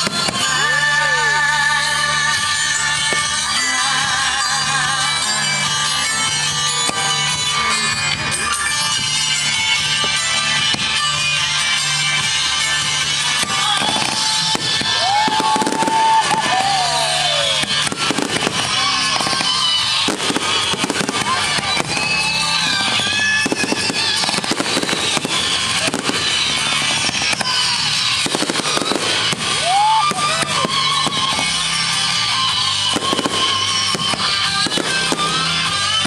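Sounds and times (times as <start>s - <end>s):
background music: 0.0s - 36.0s
fireworks bangs and crackling: 0.0s - 36.0s
fireworks whistling: 0.0s - 36.0s.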